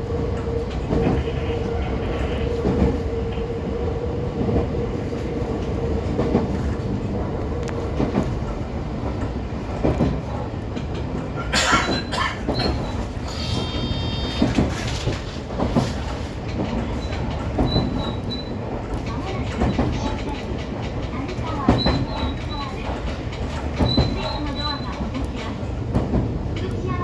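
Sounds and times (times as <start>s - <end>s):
train low rumble: 0.0s - 27.0s
faint high squealing tones: 12.6s - 14.5s.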